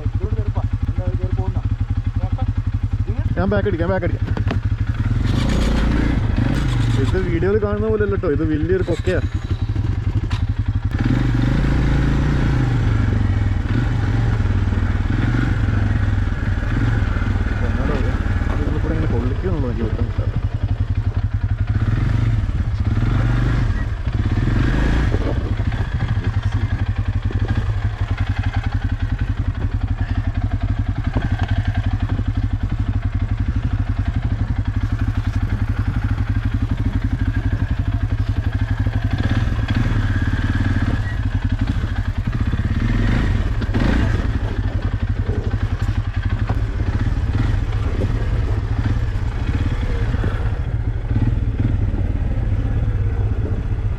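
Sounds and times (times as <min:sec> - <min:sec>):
off-road vehicle engine running: 0:00.0 - 0:53.9
vehicle knocks and clatter: 0:04.1 - 0:07.6, 0:40.7 - 0:50.3.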